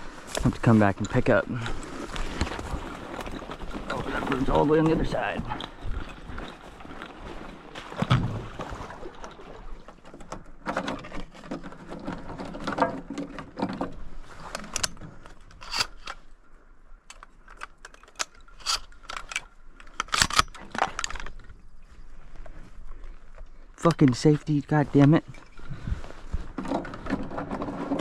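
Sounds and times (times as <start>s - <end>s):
gear clicks knocks and scrapes: 10.1s - 16.3s, 17.1s - 21.5s, 26.3s - 28.0s.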